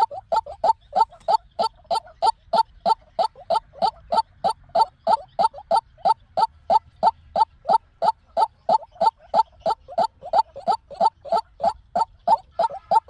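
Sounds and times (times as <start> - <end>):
waterhen calling: 0.0 - 13.0.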